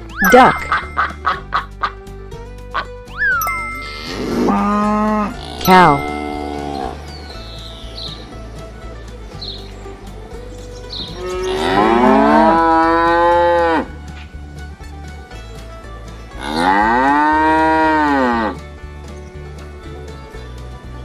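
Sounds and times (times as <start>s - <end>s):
cow mooing: 4.0s - 7.1s, 11.2s - 13.9s.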